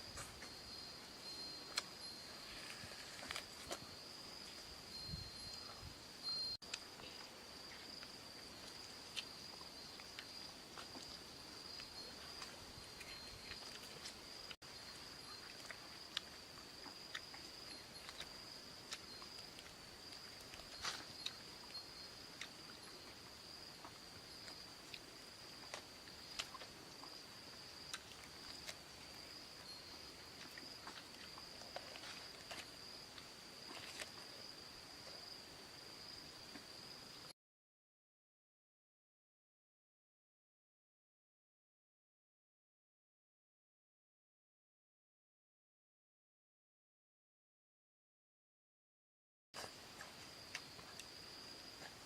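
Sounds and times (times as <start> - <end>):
insects droning: 0.0 - 37.3, 49.6 - 52.0.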